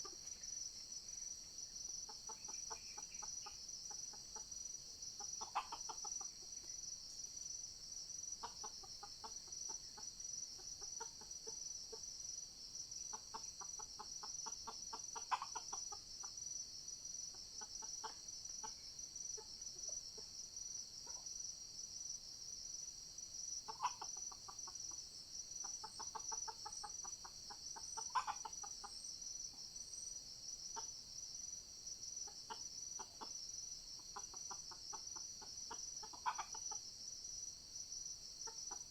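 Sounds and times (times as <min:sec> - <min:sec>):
forest insects droning: 0:00.0 - 0:38.9
junglefowl clucking: 0:01.9 - 0:04.6, 0:05.2 - 0:06.8, 0:08.4 - 0:12.1, 0:13.0 - 0:16.4, 0:17.3 - 0:20.3, 0:23.6 - 0:29.1, 0:30.7 - 0:31.0, 0:32.2 - 0:36.9, 0:38.4 - 0:38.9.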